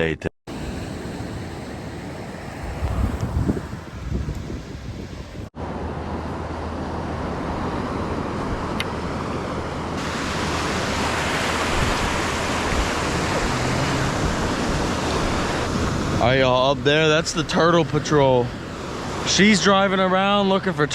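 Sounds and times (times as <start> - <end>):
ocean surf washing onto beach: 0.5 - 5.4, 6.7 - 20.9
wind on microphone: 0.5 - 5.5, 9.9 - 17.5.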